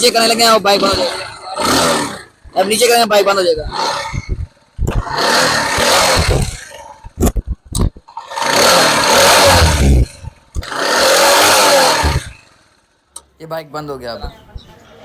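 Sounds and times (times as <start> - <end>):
motorcycle engine revving: 0.0 - 13.0
sharp clicks: 0.8 - 12.5.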